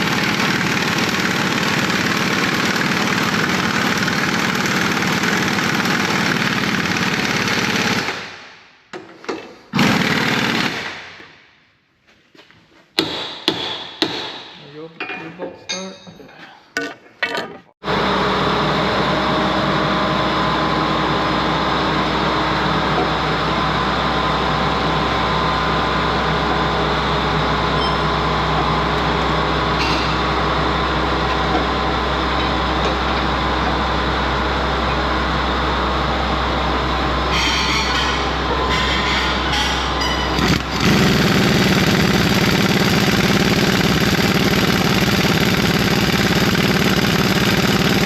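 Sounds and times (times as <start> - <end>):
machine mechanical drone: 17.8 - 48.0.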